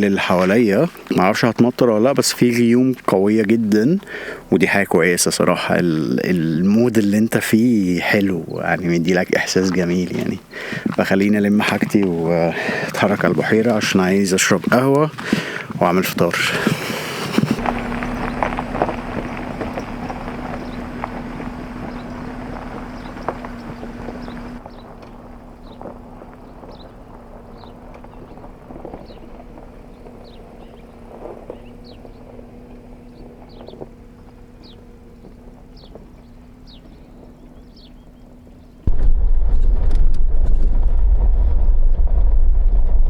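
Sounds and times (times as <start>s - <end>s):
steady low hum: 0.0s - 43.0s
camping gear clattering: 8.4s - 37.9s
high falling chirps: 16.8s - 38.5s.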